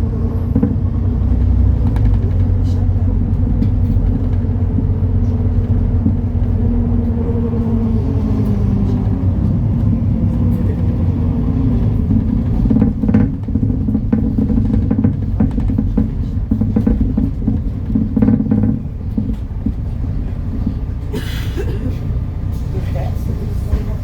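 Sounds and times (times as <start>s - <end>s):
bus engine rumbling: 0.0s - 24.0s
short knocks: 0.4s - 7.8s, 12.0s - 20.8s.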